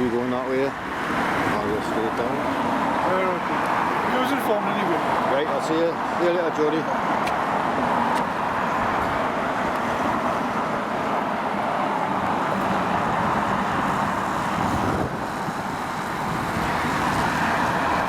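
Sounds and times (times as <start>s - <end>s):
passing road traffic: 0.0s - 18.0s
wind on microphone: 12.1s - 18.0s.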